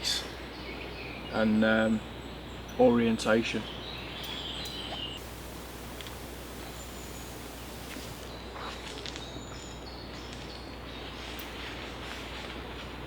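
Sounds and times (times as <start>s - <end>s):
steady rustle: 5.2s - 8.3s.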